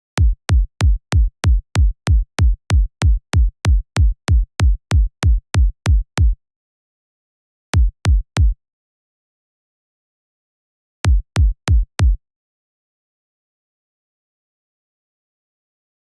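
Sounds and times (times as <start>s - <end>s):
electronic kick drum loop: 0.2s - 6.3s, 11.1s - 12.2s.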